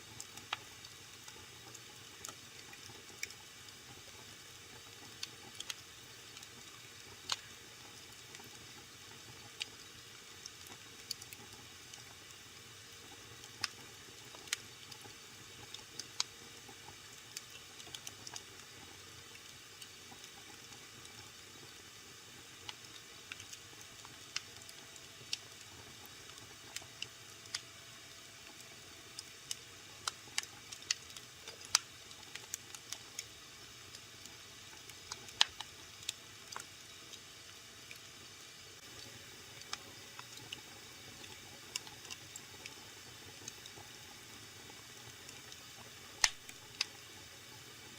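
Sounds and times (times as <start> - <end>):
soft steady hiss: 0.0 - 47.9
wood fire crackling: 0.1 - 12.4, 13.0 - 27.6, 28.4 - 36.7, 38.8 - 47.2
fire pops and snaps: 7.2 - 7.5, 13.4 - 15.0, 29.2 - 33.3, 34.2 - 36.7, 46.2 - 47.0.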